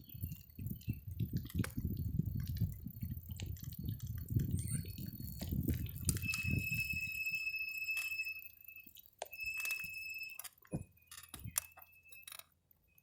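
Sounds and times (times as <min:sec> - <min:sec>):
thin high ringing tone: 0:06.0 - 0:13.0.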